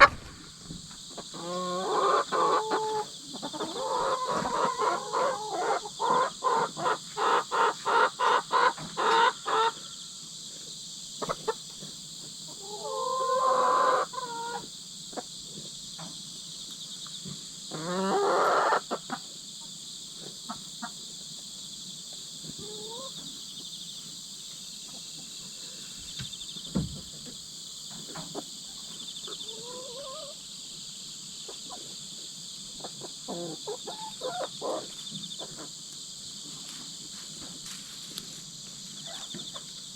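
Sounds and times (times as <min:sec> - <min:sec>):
hens clucking and squawking: 0:00.0 - 0:00.4, 0:01.1 - 0:10.0, 0:11.2 - 0:11.8, 0:12.5 - 0:15.4, 0:17.7 - 0:21.0, 0:22.4 - 0:23.4, 0:28.0 - 0:30.5, 0:31.4 - 0:35.9
insects chirping: 0:00.0 - 0:39.9.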